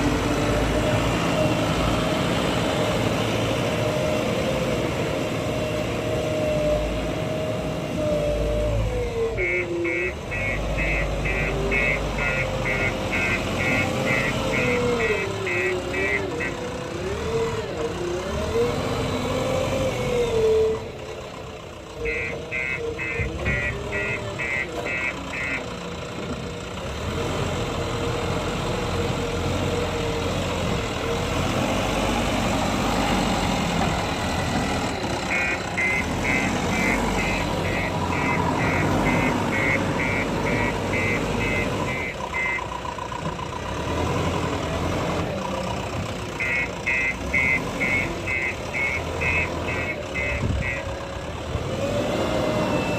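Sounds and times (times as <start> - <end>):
diesel construction machinery running: 0.0 - 52.9
reversing alarm beeping: 9.4 - 16.6, 22.0 - 25.6, 35.0 - 42.7, 46.4 - 51.0.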